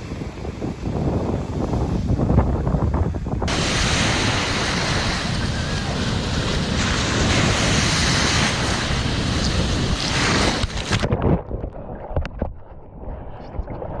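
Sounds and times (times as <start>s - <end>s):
surf rushing: 0.0s - 11.2s
wind buffeting microphone: 0.0s - 14.0s.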